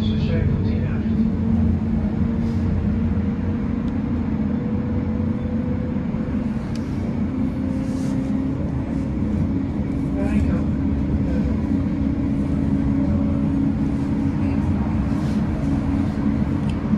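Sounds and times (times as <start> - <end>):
tram wheels rumbling on rails: 0.0 - 16.9.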